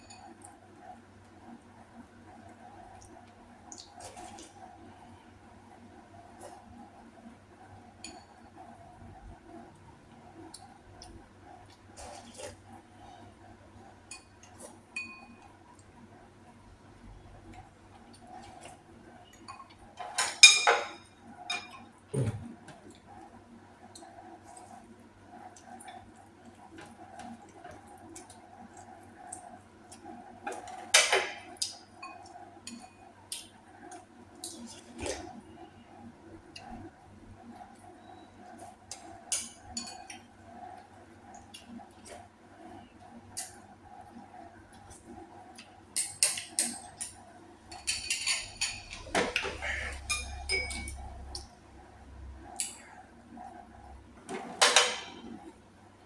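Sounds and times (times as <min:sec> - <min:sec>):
utensils tapping dishes: 0:46.0 - 0:51.0.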